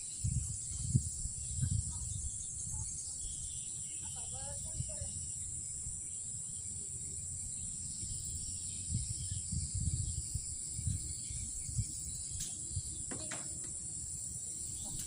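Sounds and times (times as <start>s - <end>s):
low rumbles on microphone: 0.0s - 3.6s, 7.1s - 15.0s
night insects chirping: 0.0s - 15.0s.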